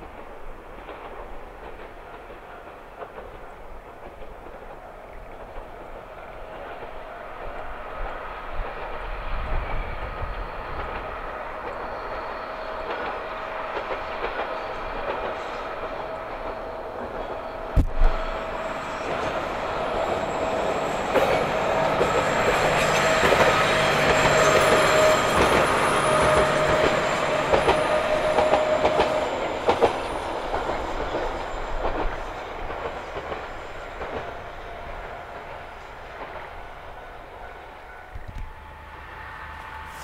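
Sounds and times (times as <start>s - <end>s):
diesel railcar engine: 0.0s - 40.0s.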